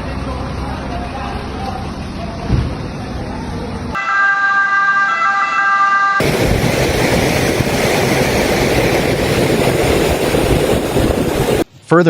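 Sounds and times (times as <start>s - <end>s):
siren chord: 4.0s - 6.9s
storm wind and water rushing: 6.2s - 11.7s.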